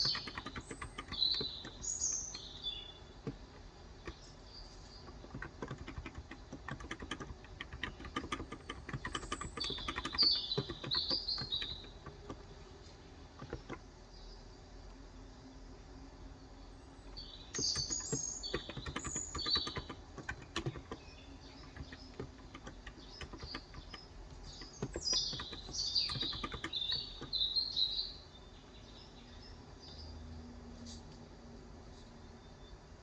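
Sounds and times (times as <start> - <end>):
quick keyboard keystrokes: 0.0 - 2.5, 5.0 - 12.6, 13.4 - 13.8, 17.5 - 27.4
small birds chirping: 0.0 - 33.0.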